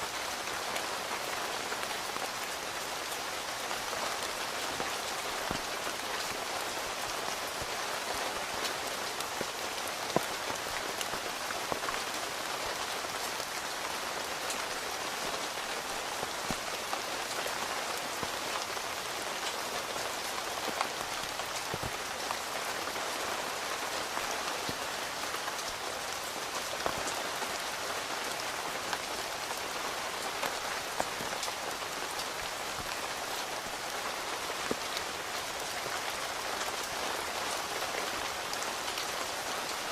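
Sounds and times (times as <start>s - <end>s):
rain hissing: 0.0s - 39.9s
raindrops ticking on tent: 0.0s - 39.9s.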